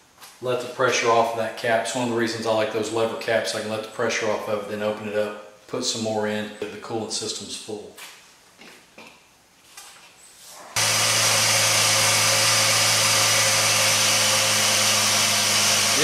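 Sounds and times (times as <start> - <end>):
car engine idling: 10.8 - 16.0.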